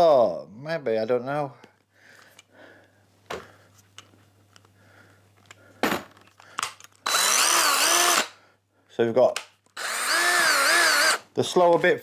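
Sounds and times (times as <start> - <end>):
cordless drill motor: 7.0 - 8.4, 9.8 - 11.3.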